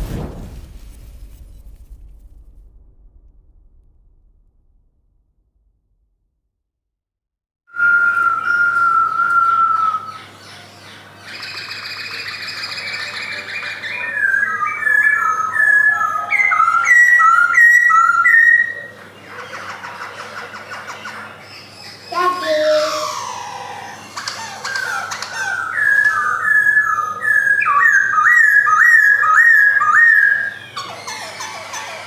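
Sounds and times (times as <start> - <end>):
bird singing whistled notes: 7.7 - 10.3, 11.3 - 18.9, 25.5 - 30.8.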